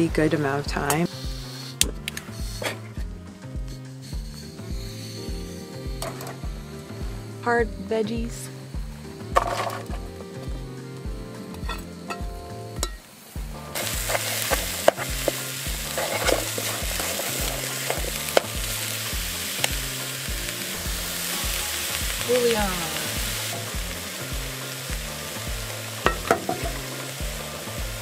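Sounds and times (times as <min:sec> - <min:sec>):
vegetables sizzling in pot: 0:00.0 - 0:28.0
spatula scraping pot: 0:14.0 - 0:18.5.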